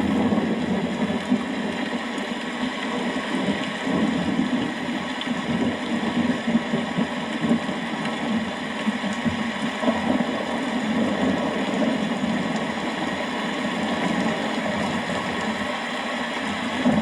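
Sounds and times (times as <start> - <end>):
steady rain: 0.0 - 17.0.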